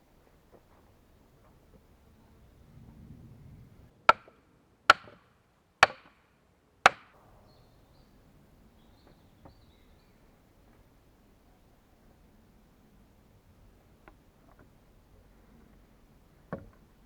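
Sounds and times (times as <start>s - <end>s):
axe chopping wood: 4.1s - 5.2s, 5.8s - 6.2s, 6.9s - 7.2s.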